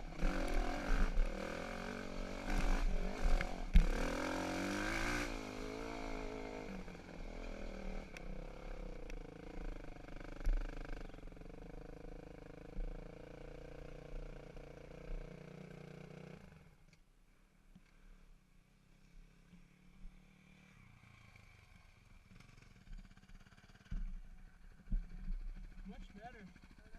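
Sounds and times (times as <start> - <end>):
dirt bike engine revving: 0.0 - 16.6.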